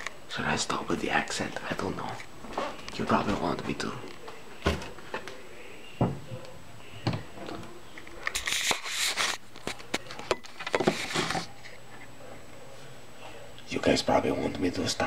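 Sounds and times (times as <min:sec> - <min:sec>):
rustling noise: 0:08.3 - 0:10.0.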